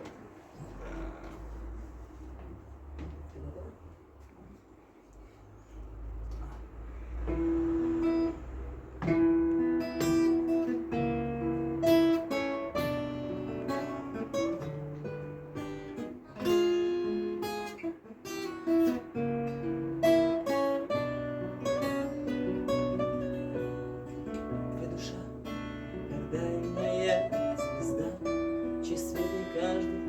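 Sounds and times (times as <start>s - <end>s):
acoustic guitar playing: 7.0s - 30.0s.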